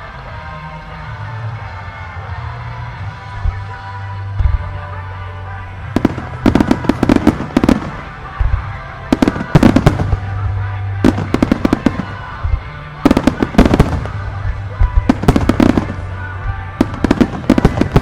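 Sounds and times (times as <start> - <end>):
music playing: 0.0 - 18.0
fireworks bursting: 5.7 - 18.0.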